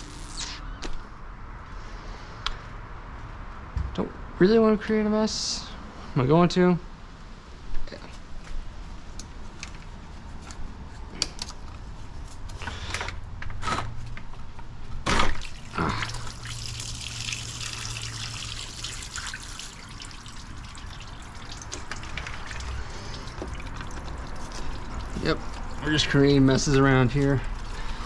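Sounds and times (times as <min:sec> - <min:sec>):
fluid trickling from hose: 0:15.4 - 0:28.0.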